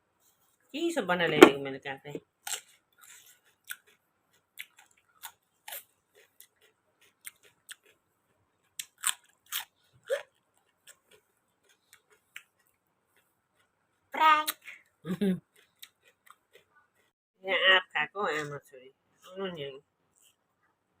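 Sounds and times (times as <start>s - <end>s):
person chewing crunchy food: 2.4s - 13.8s, 15.4s - 17.2s.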